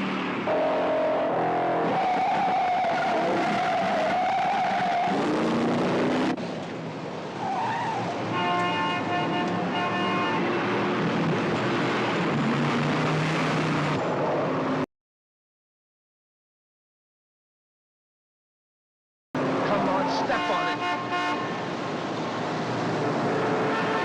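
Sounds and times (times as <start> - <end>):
car engines running hard: 0.0 - 8.4, 9.3 - 14.8, 19.4 - 20.4
tires squealing: 0.4 - 6.3, 7.4 - 8.4.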